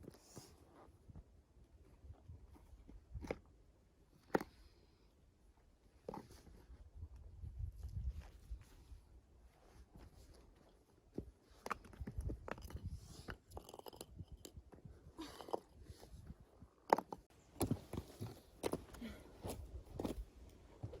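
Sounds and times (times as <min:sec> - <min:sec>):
camping gear knocking and rustling: 0:09.9 - 0:20.2.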